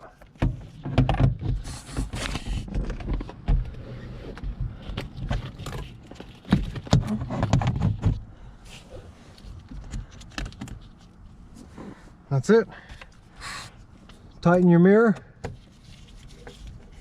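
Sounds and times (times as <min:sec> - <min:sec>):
plastic parts clicking and knocking: 0:09.6 - 0:10.9.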